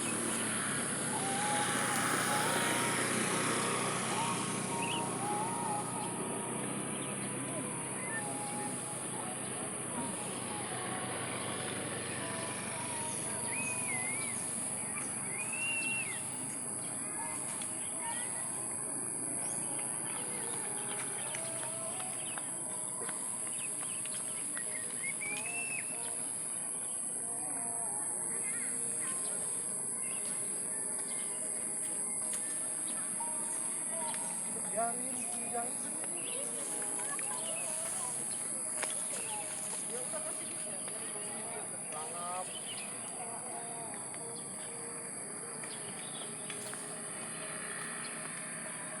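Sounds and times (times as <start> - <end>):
birds chirping: 0.0 - 49.0
faint distant voices: 0.0 - 49.0
high-pitched drone: 0.0 - 49.0
insects shrilling: 26.7 - 48.6.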